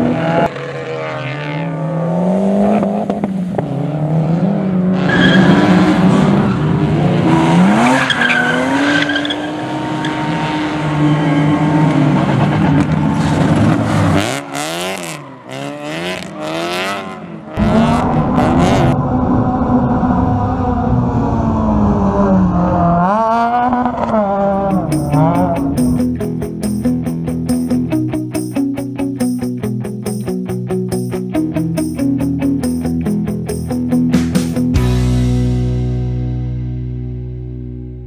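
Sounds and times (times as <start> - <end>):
rally car engines revving: 0.0 - 27.9
steady loud engine sound: 9.6 - 28.2.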